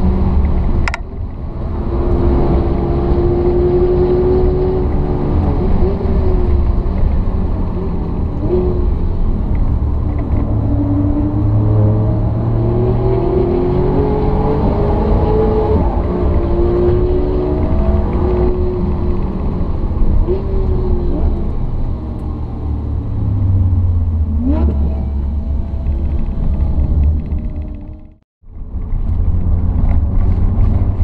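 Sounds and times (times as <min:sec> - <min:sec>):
car engine accelerating: 0:00.0 - 0:31.0
low road rumble: 0:00.0 - 0:31.0.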